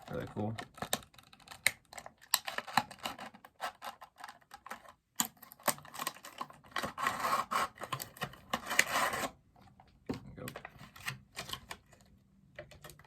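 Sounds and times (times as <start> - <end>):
rustling scrape of packaging: 6.0 - 9.4.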